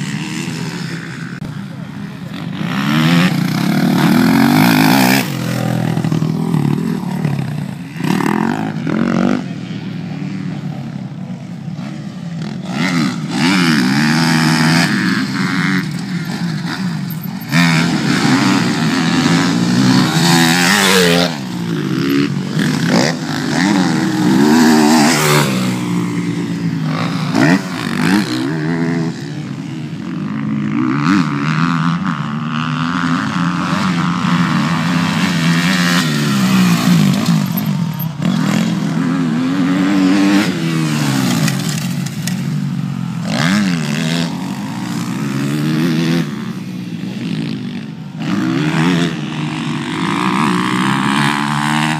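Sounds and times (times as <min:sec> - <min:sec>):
dirt bike engines revving: 0:00.0 - 0:51.9.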